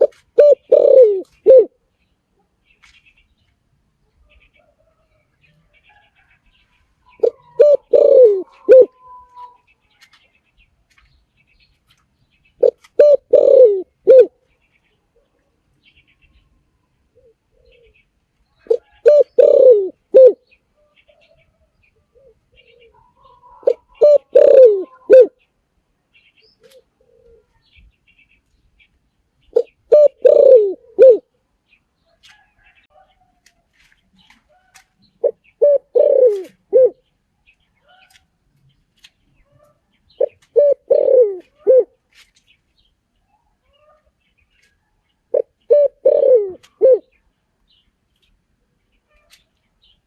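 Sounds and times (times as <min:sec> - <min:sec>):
dove cooing: 0:00.0 - 0:01.8, 0:07.1 - 0:09.6, 0:12.6 - 0:14.4, 0:17.1 - 0:18.0, 0:18.6 - 0:20.5, 0:22.1 - 0:25.4, 0:26.6 - 0:27.6, 0:29.5 - 0:31.3, 0:35.2 - 0:37.1, 0:39.5 - 0:42.0, 0:45.3 - 0:47.2.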